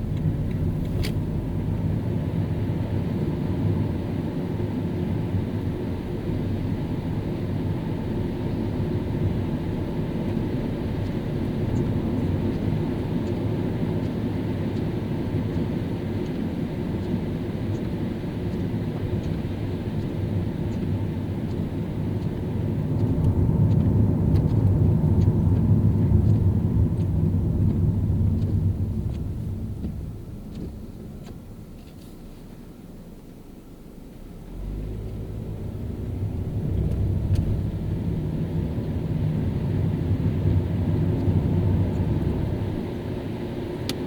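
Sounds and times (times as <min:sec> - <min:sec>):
car driving on wet road: 0:00.0 - 0:44.0
faint light ticks: 0:00.1 - 0:01.2, 0:10.3 - 0:33.4, 0:36.8 - 0:37.6.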